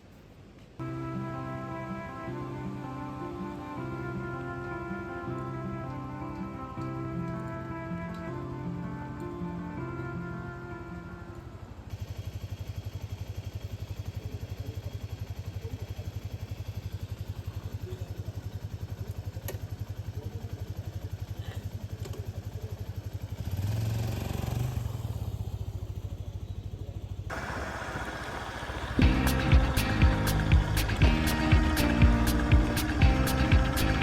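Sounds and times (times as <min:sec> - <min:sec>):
motorcycle engine running: 0:11.6 - 0:34.0.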